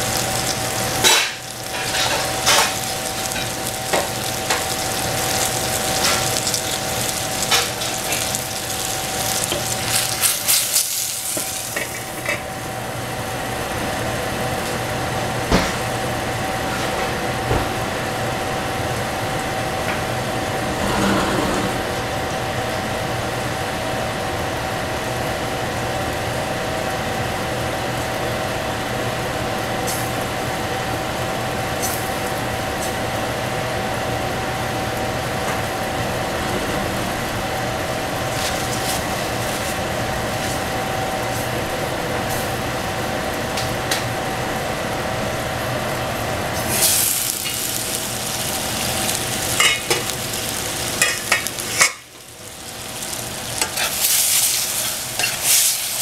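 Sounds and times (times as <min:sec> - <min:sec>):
food sizzling in a pan: 0:00.0 - 0:14.0, 0:37.6 - 0:56.0.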